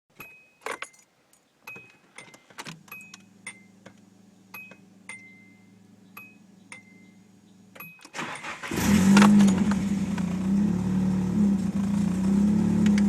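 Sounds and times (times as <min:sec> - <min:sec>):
car keys jangling: 0:00.6 - 0:03.3.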